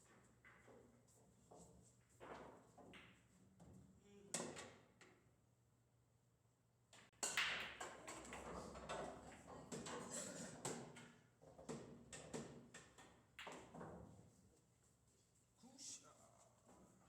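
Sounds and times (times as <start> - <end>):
pool balls clacking: 7.0 - 14.1.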